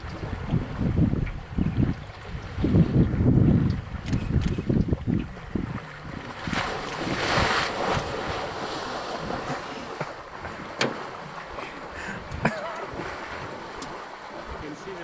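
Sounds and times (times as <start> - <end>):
wind buffeting microphone: 0.0 - 14.8
water rushing and splashing: 0.0 - 15.0
sharp click: 3.6 - 4.7.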